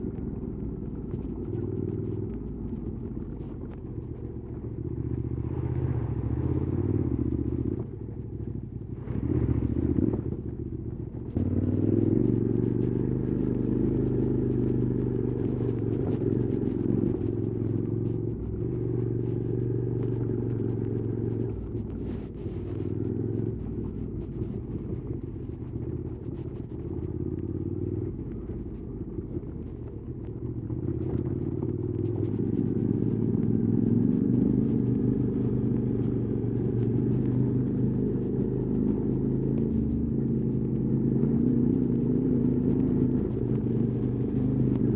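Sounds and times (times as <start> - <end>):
motorcycle engine revving: 8.9 - 44.9.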